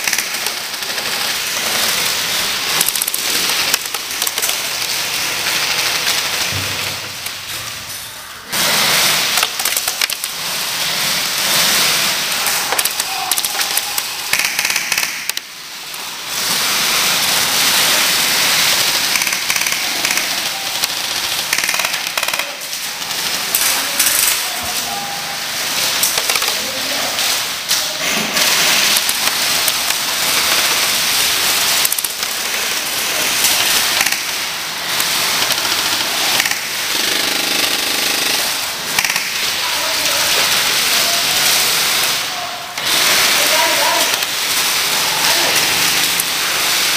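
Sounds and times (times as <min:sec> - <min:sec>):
airsoft guns firing bursts: 0:12.8 - 0:15.4, 0:18.0 - 0:24.4, 0:28.4 - 0:39.6, 0:42.8 - 0:45.0.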